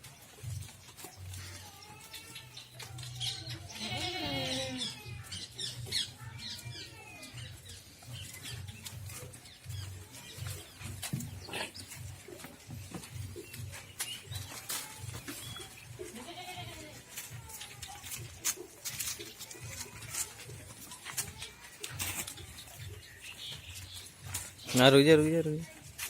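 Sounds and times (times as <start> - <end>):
goats bleating: 3.5 - 5.3, 15.9 - 17.3.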